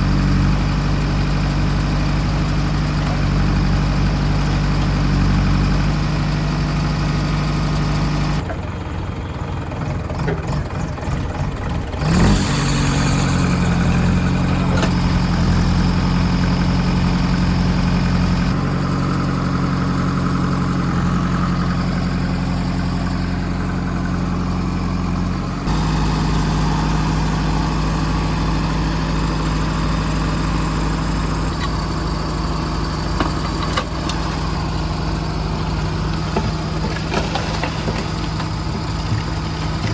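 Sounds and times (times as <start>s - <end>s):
diesel engines running: 0.0s - 39.9s
loud clatter: 31.3s - 39.9s.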